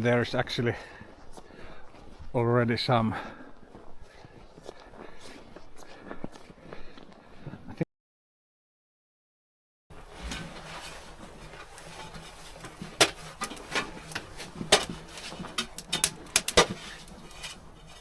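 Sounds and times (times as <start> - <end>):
sharp cracks and knocks: 12.0 - 17.6.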